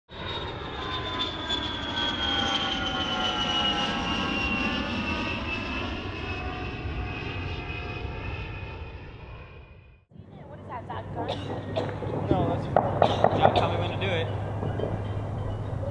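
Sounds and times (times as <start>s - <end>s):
aircraft whine falling in pitch: 0.1s - 10.0s
aircraft engine rumble: 0.1s - 15.9s.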